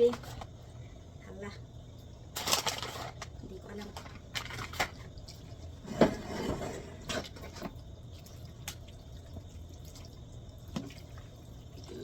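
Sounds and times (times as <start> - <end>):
sauce bubbling in a pan: 5.0 - 5.9, 7.0 - 12.0.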